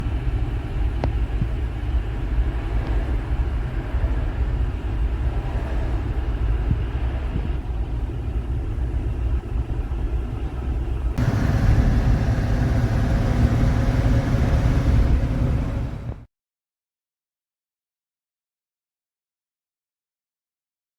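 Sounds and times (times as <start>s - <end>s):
pickup truck engine running: 11.2s - 16.3s.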